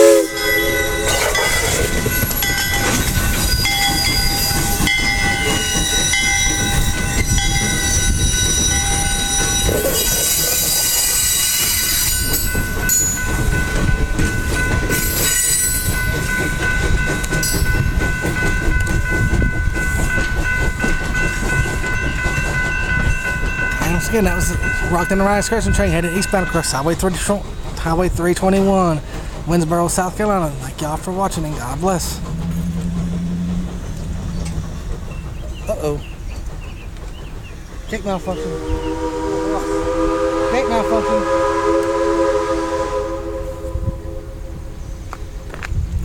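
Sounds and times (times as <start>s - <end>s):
train wheels clacking on rails: 0.0s - 43.4s
high-pitched ringing tones: 0.2s - 16.2s.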